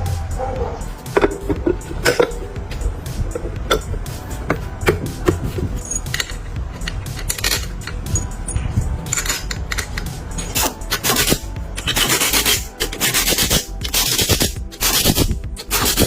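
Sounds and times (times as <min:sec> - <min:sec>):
background music: 0:00.0 - 0:16.0
filing on metal: 0:10.4 - 0:16.0.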